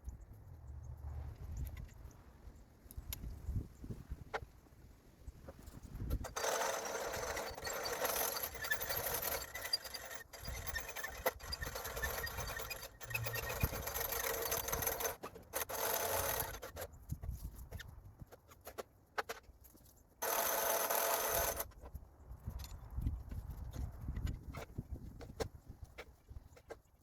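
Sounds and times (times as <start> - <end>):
bandsaw mill running: 6.2 - 16.8, 20.2 - 21.7.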